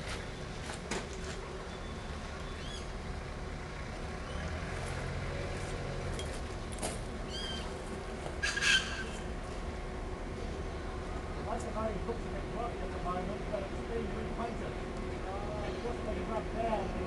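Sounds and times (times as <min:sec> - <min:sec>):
harsh bird call: 0:08.4 - 0:09.2.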